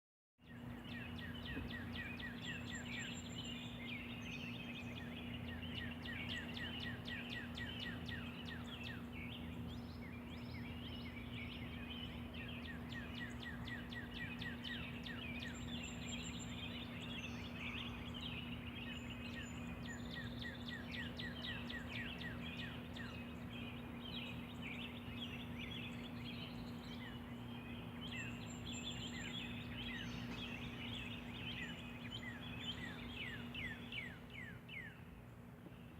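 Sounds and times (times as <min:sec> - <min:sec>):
bird trills: 0:00.4 - 0:35.1
songbirds chirping and singing: 0:00.4 - 0:35.9
steady low hum: 0:00.5 - 0:35.9.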